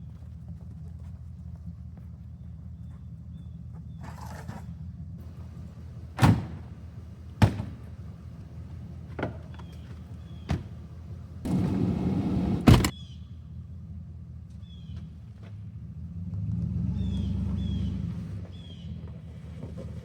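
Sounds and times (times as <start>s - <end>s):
gear thumping: 5.2s - 12.9s
low hum: 5.2s - 12.9s
sliding rumble: 5.2s - 12.9s
vehicle door slamming: 5.2s - 12.9s.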